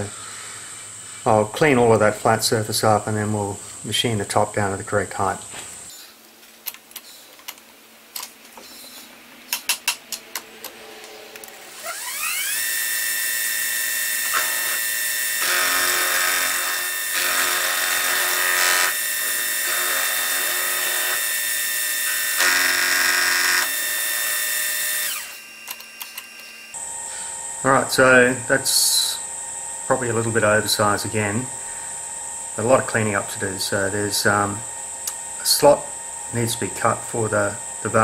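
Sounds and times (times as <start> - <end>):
end mill cutting metal: 10.6 - 26.7
milling machine spindle whine: 10.6 - 26.8.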